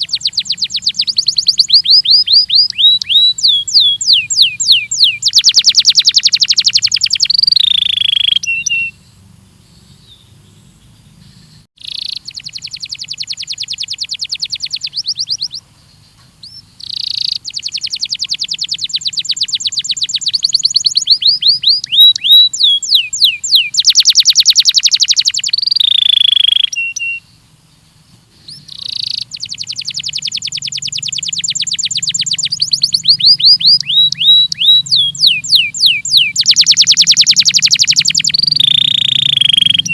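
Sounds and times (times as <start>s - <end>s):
canary singing trills: 0.0s - 39.9s
faint low hum: 25.4s - 39.9s.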